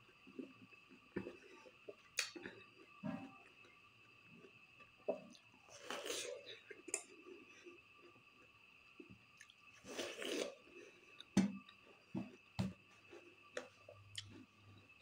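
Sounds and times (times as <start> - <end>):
crunchy bite into watermelon: 9.9 - 10.6.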